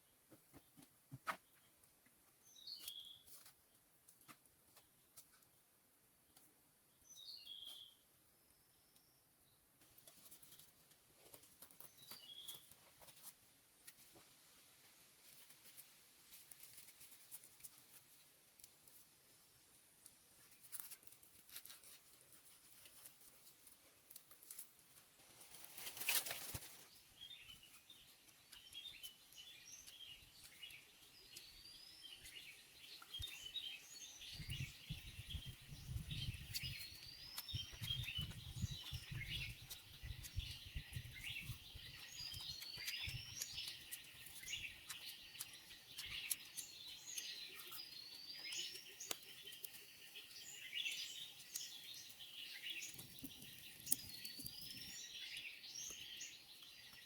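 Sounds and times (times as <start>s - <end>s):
birds chirping: 25.8s - 57.0s.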